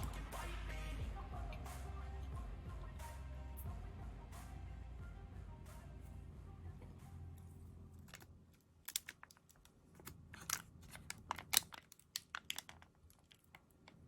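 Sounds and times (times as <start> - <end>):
faint low hum: 0.0 - 14.0
sharp clicks and crackles: 8.0 - 14.0.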